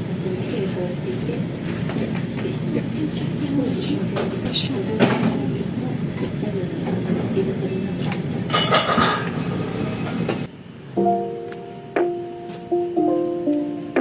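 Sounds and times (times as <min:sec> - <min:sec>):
restaurant background din: 0:00.0 - 0:10.6
dishes and cutlery clinking: 0:08.4 - 0:09.4
plucked ukulele music: 0:11.0 - 0:14.0.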